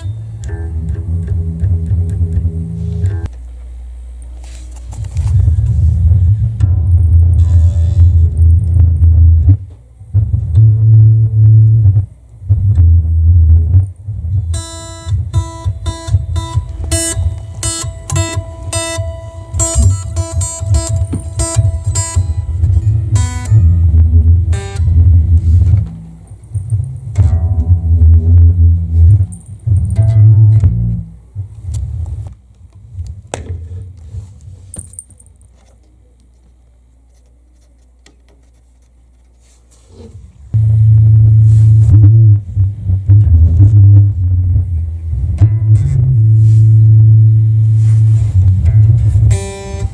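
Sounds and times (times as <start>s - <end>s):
plucked guitar notes: 0.0s - 3.3s, 5.5s - 31.2s, 40.6s - 49.9s
low amplifier hum: 0.0s - 49.9s
heavy low rumble: 4.9s - 32.3s, 40.5s - 49.4s.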